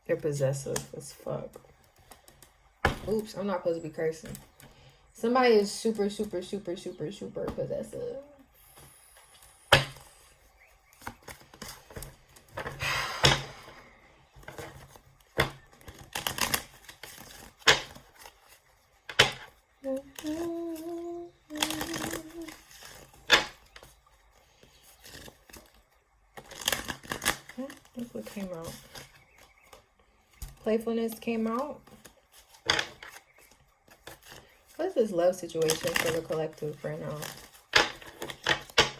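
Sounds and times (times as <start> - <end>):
cards being shuffled: 8.8 - 34.8, 35.6 - 38.9
person humming: 19.8 - 22.6.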